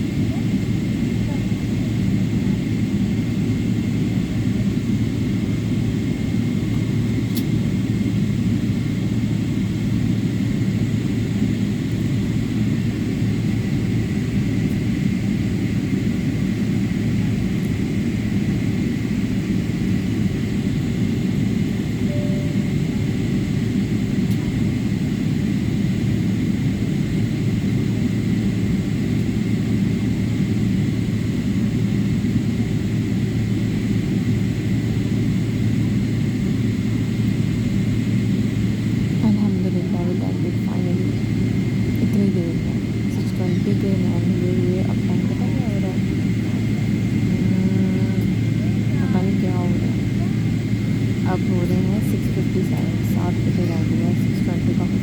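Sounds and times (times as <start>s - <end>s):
airliner engine rumble: 0.0s - 55.0s
thin steady whine: 19.4s - 25.2s, 34.1s - 55.0s.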